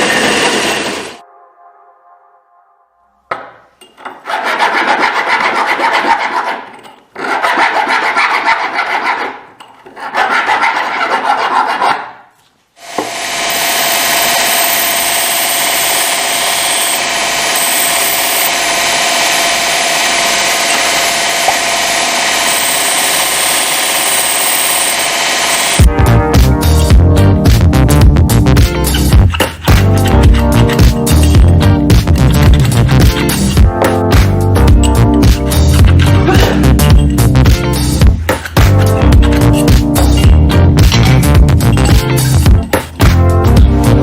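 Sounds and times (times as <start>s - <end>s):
hand tool rasping on workpiece: 4.1s - 12.1s
electronic background music: 25.7s - 44.0s.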